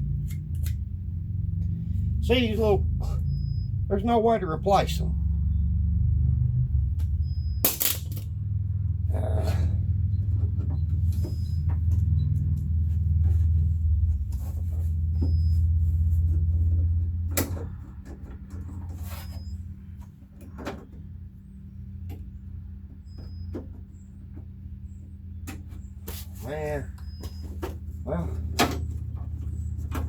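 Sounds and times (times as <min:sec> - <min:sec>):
steady low hum: 0:00.0 - 0:30.0
metallic clicks of parts and tools: 0:07.6 - 0:08.3.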